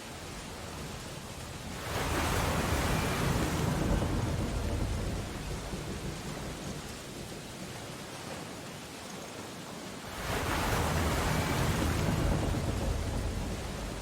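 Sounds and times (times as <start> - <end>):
stormy sea: 0.0 - 14.0
storm surge with deep rumble: 2.1 - 6.9, 10.5 - 14.0.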